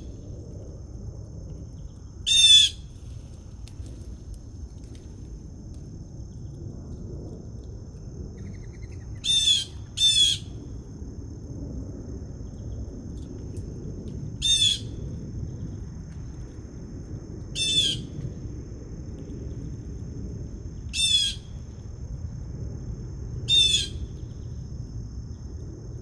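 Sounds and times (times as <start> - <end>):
low background rumble: 0.0 - 26.0
bird giving harsh calls: 9.3 - 10.4, 17.6 - 18.0.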